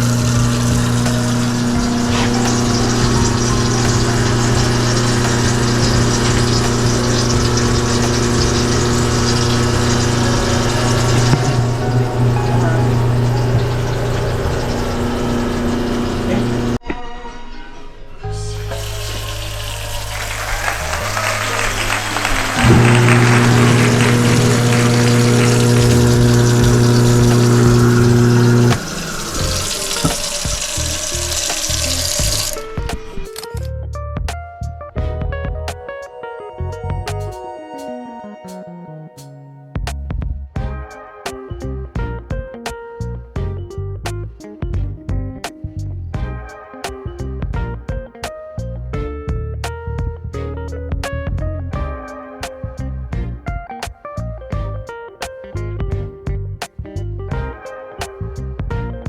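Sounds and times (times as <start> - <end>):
garbage disposal humming: 0.0 - 16.8, 18.4 - 33.3
plucked-note music: 0.0 - 16.8, 20.7 - 40.8
tap water running into sink: 0.0 - 16.8, 18.6 - 32.9.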